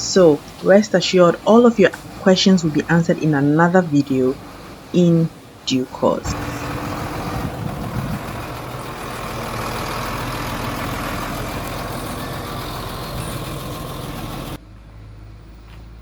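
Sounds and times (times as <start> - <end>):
heavy machine engine running: 6.2 - 14.6.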